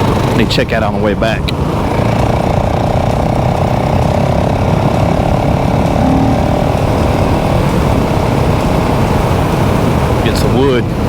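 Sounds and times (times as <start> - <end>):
wind and road noise: 0.0 - 11.0
motorcycle engine running: 1.6 - 10.2.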